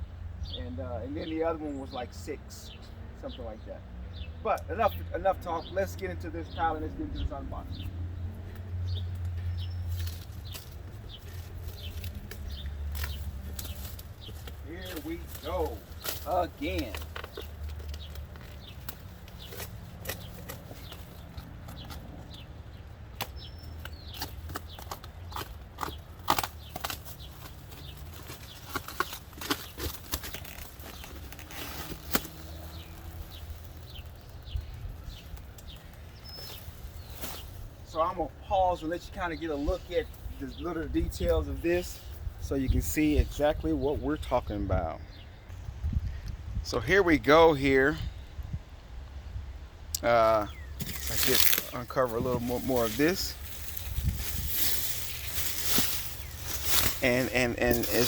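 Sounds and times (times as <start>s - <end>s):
small birds chirping: 0.0s - 58.0s
packaging crackling and rustling: 24.9s - 34.7s, 50.8s - 58.0s
steady low rumble: 50.9s - 58.0s.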